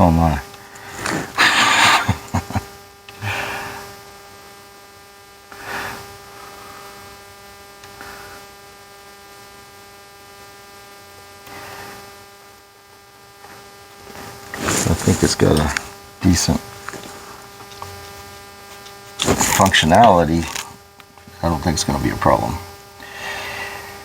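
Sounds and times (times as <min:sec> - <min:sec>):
steady electrical hum: 0:00.0 - 0:24.0
soft rustles or breaths: 0:14.1 - 0:16.0, 0:16.6 - 0:17.8.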